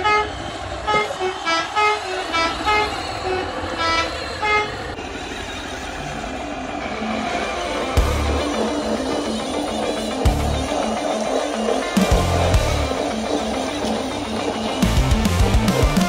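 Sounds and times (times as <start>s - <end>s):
musical truck horn tune: 0.0s - 2.9s
steady rumble: 7.7s - 16.0s.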